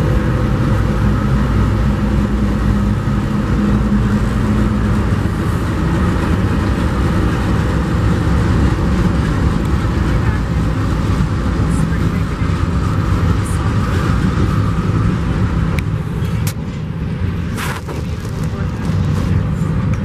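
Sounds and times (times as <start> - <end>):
diesel locomotive drone: 0.0 - 20.0
train wheels rumbling on rails: 0.0 - 20.0.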